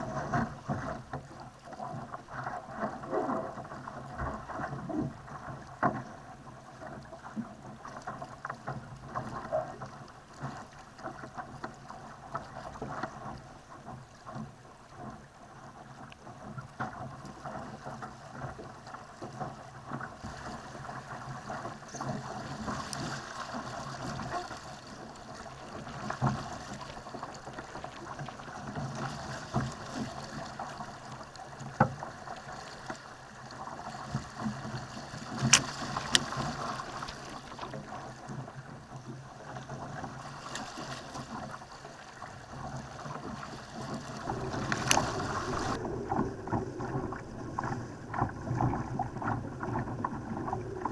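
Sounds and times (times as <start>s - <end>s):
water rushing along a hull: 0.0s - 50.9s
wind noise: 43.5s - 50.9s.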